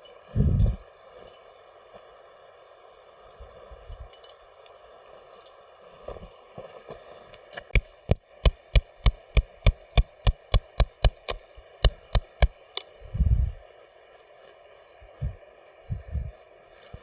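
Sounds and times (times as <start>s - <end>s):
sharp knocks: 7.8s - 12.5s.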